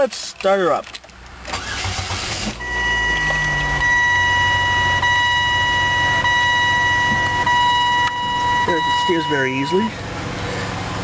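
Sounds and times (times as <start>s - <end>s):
car engine idling: 1.0s - 11.0s
high-pitched electronic warning tone: 2.6s - 9.9s.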